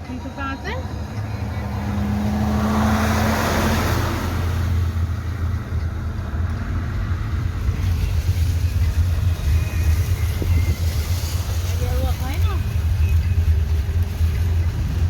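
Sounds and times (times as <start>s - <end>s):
car engine rumbling: 0.0s - 15.0s
rushing water noise: 0.8s - 15.0s.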